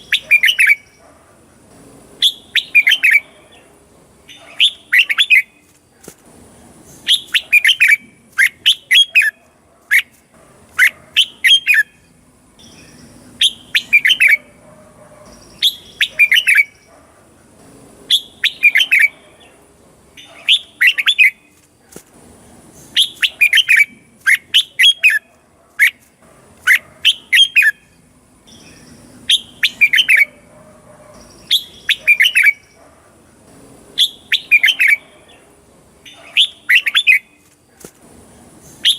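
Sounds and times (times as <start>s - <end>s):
bird whistled song phrases: 0.0s - 1.0s, 2.2s - 3.3s, 7.0s - 10.1s, 10.8s - 12.0s, 12.6s - 14.5s, 15.3s - 16.8s, 18.1s - 19.2s, 22.9s - 26.0s, 28.5s - 30.4s, 31.2s - 32.7s, 34.0s - 35.1s, 36.1s - 37.4s.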